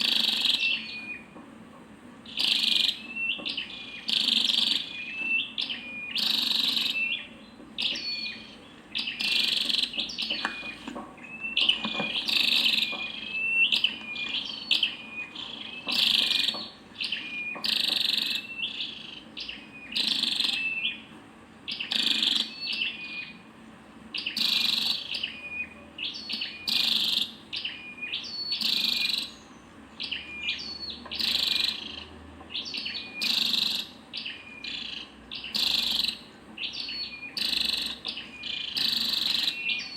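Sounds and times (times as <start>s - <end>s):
bird chirping: 0.0s - 1.4s, 2.2s - 21.1s, 21.7s - 23.4s, 24.1s - 39.9s.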